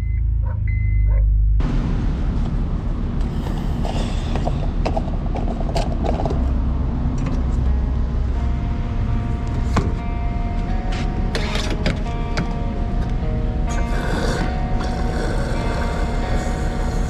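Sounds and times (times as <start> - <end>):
car cabin rumble: 0.0 - 13.9
faint music tones: 0.0 - 17.0
creaks rattles and clicks: 3.2 - 8.5, 11.3 - 13.8.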